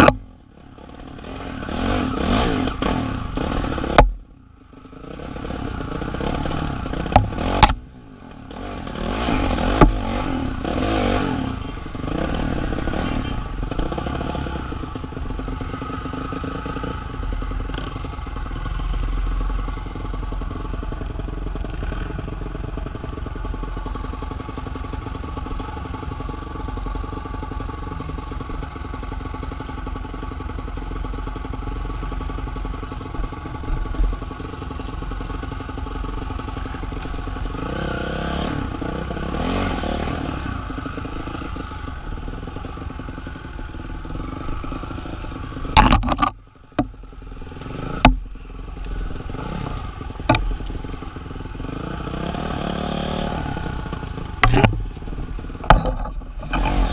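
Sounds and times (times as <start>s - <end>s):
vehicle engine running: 0.0s - 56.9s
rattling and clatter: 44.9s - 51.3s, 53.7s - 56.9s.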